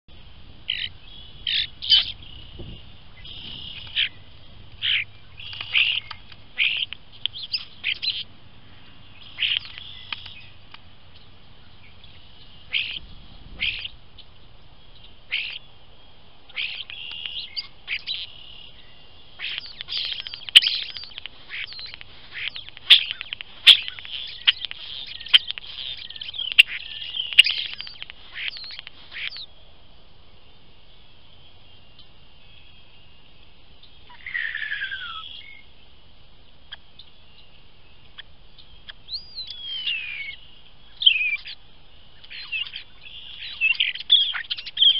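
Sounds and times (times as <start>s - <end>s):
bird chirping: 0.6s - 44.9s
sharp clicks: 5.4s - 7.4s, 9.4s - 10.8s, 19.5s - 29.0s.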